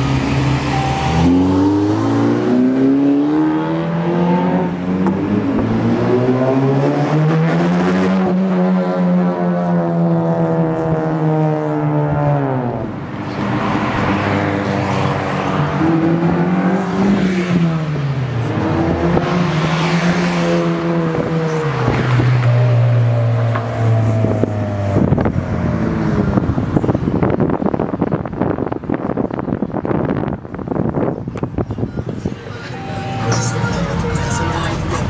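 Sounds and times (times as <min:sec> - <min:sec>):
car engine and exhaust: 0:00.0 - 0:35.0
wind noise: 0:23.9 - 0:32.5.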